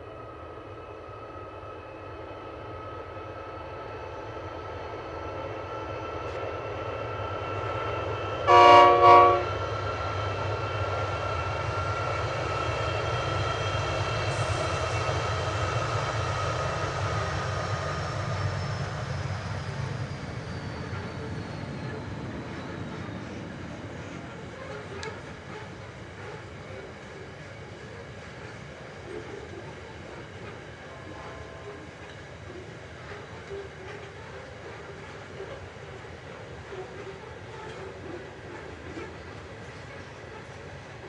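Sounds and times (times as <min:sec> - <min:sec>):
diesel locomotive engine drone: 0:00.0 - 0:41.0
locomotive horn blasts: 0:08.5 - 0:09.5.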